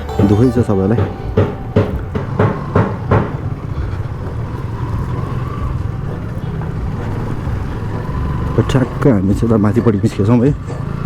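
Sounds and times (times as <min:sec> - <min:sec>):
sharp knocks: 0:00.1 - 0:03.7
motorcycle engine running: 0:01.8 - 0:11.0.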